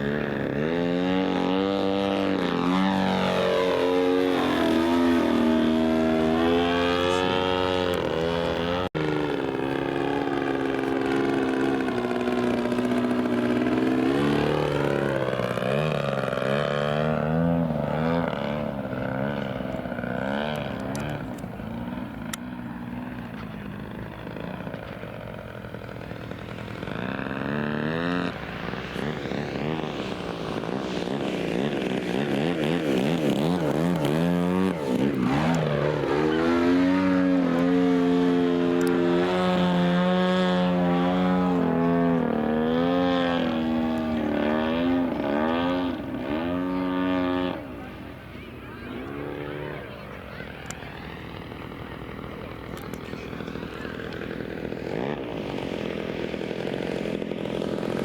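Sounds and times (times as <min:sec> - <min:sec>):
model airplane engine: 0:00.0 - 0:58.0.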